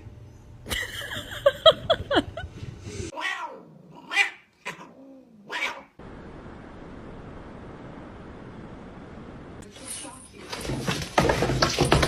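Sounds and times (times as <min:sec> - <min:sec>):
cat meowing: 0:03.1 - 0:06.0
faint steady hiss: 0:05.8 - 0:10.2.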